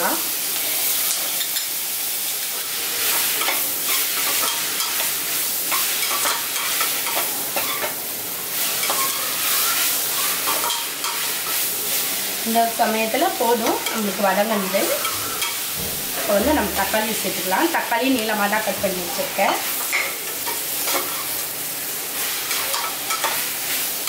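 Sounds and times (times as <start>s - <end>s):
onions sizzling in hot oil: 0.0s - 24.0s
metal spatula scraping a pot: 13.7s - 17.0s.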